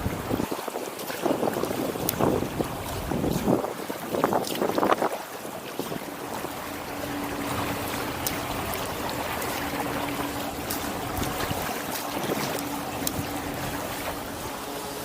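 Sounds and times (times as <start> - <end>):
water splashing around kayak: 0.0 - 15.0
faint steady hum: 5.5 - 15.0.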